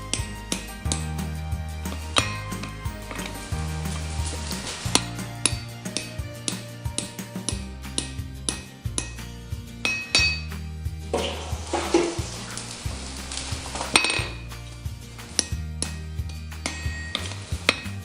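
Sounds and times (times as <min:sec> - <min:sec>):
background music: 0:00.0 - 0:18.0
hissing noise: 0:11.1 - 0:15.4
hammer blows on hot steel: 0:15.2 - 0:18.0.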